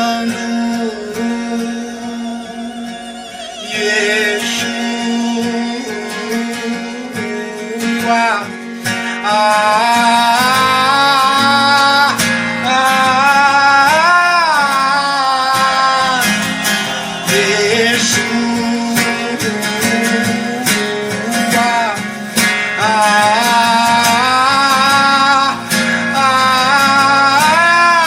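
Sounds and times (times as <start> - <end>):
person singing long notes: 0.0 - 8.5, 9.2 - 22.0, 22.8 - 28.0
strummed acoustic guitar: 0.0 - 28.0.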